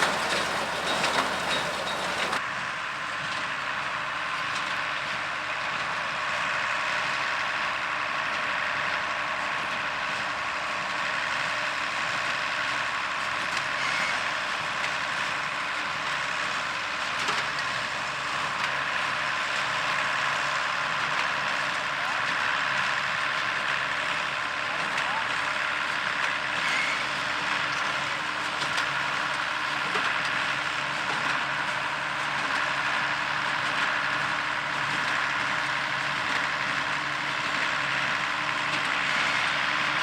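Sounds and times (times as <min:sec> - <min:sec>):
square baler baling hay: 0:00.0 - 0:02.4
tractor diesel engine running: 0:00.0 - 0:13.5, 0:14.3 - 0:40.0.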